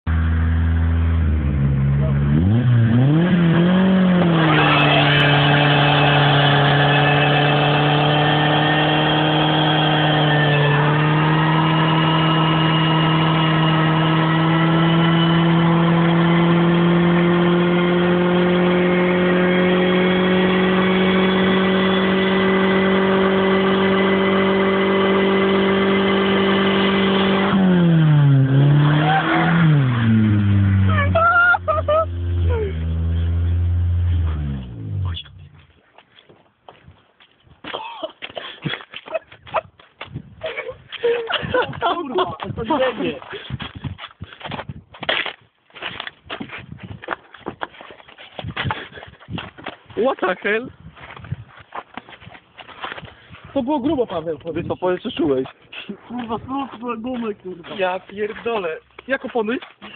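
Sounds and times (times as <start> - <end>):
car engine revving high: 0.1 - 35.3.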